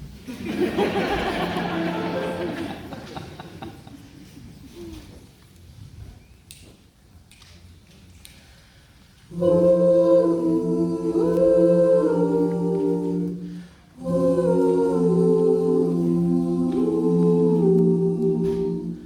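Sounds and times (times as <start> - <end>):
vocal ensemble singing a cappella: 0.4 - 3.9, 9.2 - 19.0.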